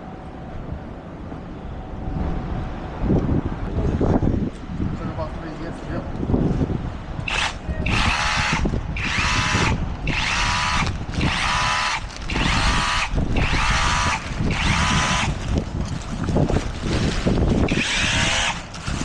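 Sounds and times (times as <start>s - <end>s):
power drill whining in bursts: 7.3s - 15.4s, 17.7s - 18.6s.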